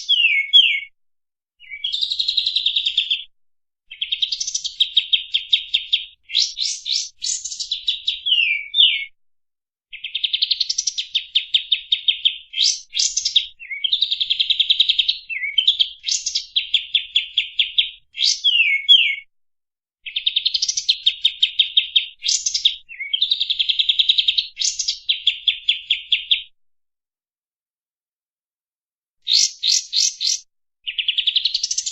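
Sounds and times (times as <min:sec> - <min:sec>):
songbird trilling: 0:00.0 - 0:00.9, 0:03.9 - 0:09.1, 0:09.9 - 0:19.2, 0:20.0 - 0:26.3, 0:29.3 - 0:31.9.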